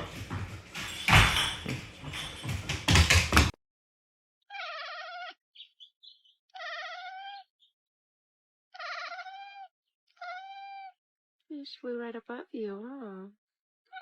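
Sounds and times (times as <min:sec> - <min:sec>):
animal wavering cry: 0:04.5 - 0:05.4, 0:06.0 - 0:07.5, 0:08.7 - 0:11.0.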